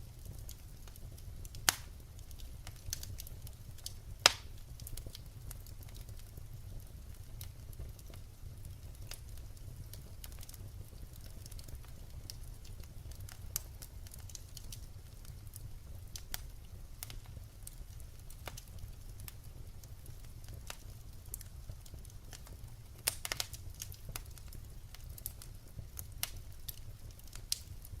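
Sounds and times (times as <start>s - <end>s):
low fire rumble: 0.0s - 28.0s
wood fire crackling and popping: 0.0s - 28.0s.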